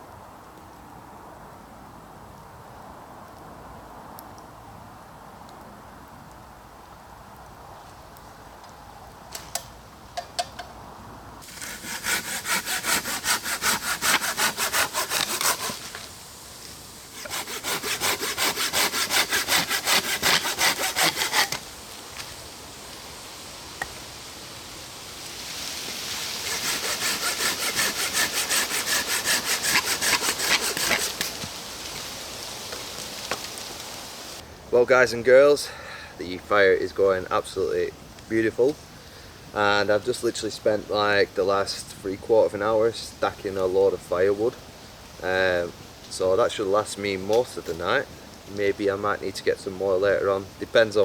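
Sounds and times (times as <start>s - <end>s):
hand saw cutting wood: 11.4s - 16.1s, 17.1s - 21.7s, 26.4s - 31.5s.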